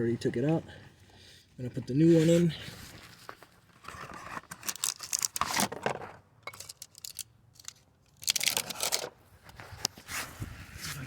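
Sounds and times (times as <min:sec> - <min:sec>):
rustling and crinkling: 0:02.0 - 0:06.2.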